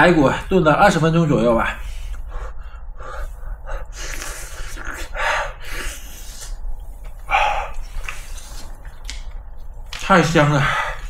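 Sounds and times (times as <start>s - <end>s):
slurping and chewing: 3.9s - 10.0s.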